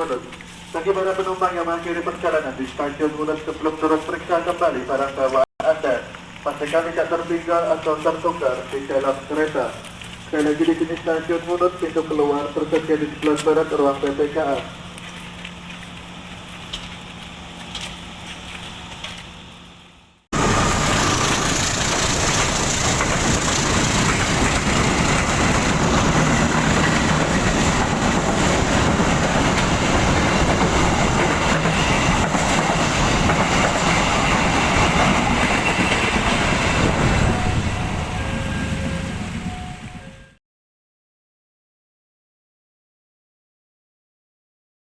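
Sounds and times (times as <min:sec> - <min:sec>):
standing train humming: 0:00.0 - 0:40.3
train rumbling on rails: 0:00.0 - 0:40.4.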